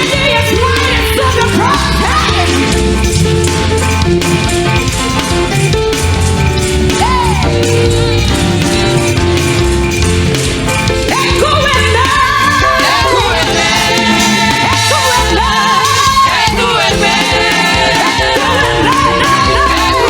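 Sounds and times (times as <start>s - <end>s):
gospel choir singing with band: 10.9s - 20.0s.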